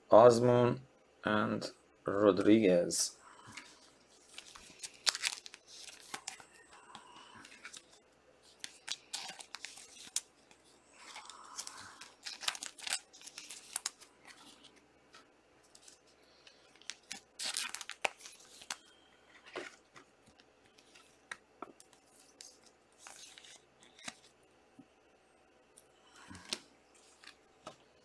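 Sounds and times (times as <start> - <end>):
plastic wrappers tearing and crinkling: 4.2 - 14.7, 16.6 - 18.8, 21.8 - 24.3.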